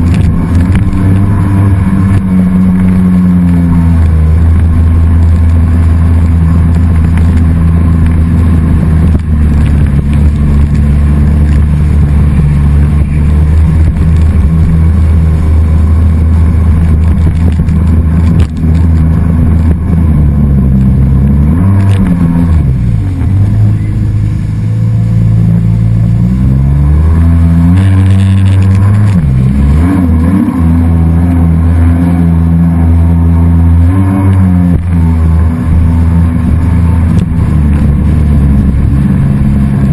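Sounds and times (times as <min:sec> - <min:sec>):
jet ski engine running hard: 0:00.0 - 0:39.9.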